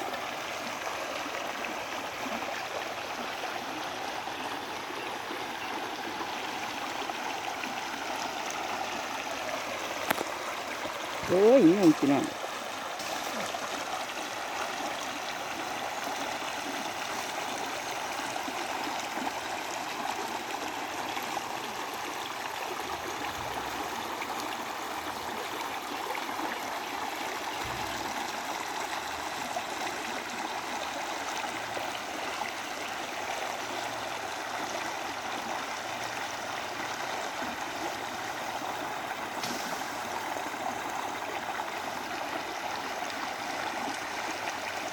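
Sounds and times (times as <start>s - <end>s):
waterfall rushing and splashing: 9.6s - 12.4s.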